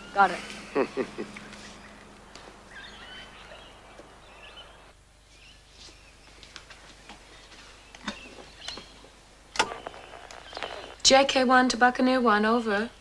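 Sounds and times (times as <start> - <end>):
faint bird chirps: 0.0 - 11.0
outdoor background noise: 0.0 - 13.0.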